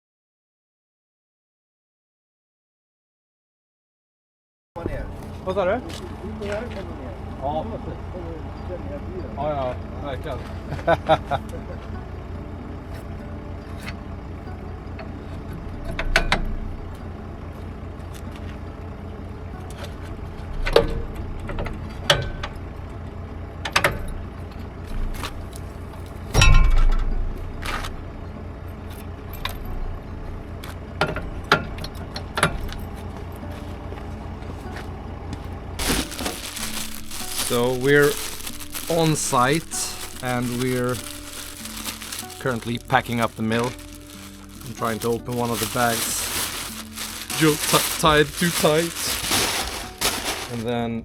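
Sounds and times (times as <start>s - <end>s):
engine idling: 4.9s - 26.4s.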